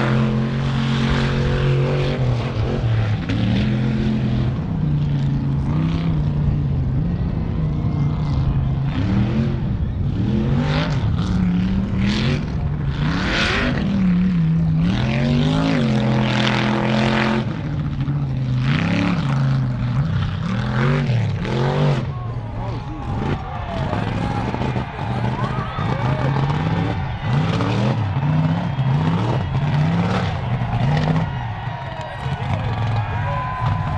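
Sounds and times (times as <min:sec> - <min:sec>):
big engine revving: 0:00.0 - 0:33.9
bursts of rushing noise: 0:21.3 - 0:33.9.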